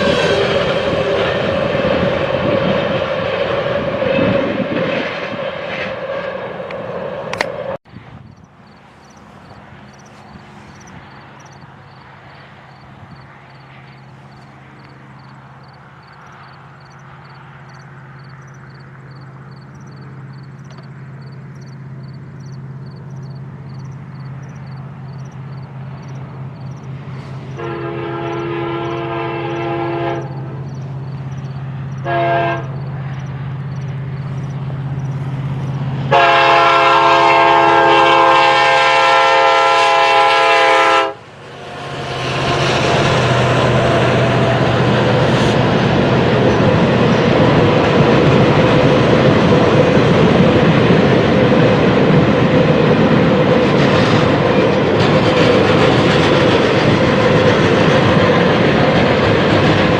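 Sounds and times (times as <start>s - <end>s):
train horn blasts: 0.0s - 5.1s, 27.4s - 30.8s, 32.0s - 33.0s, 36.0s - 47.2s
diesel locomotive engine: 0.0s - 59.9s
train passing with rumbling rush: 0.0s - 59.9s.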